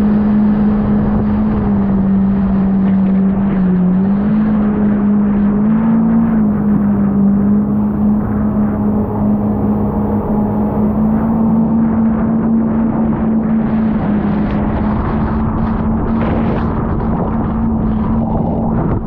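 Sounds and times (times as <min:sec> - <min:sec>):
jet ski engine droning: 0:00.0 - 0:19.0
rushing noise: 0:00.0 - 0:19.0.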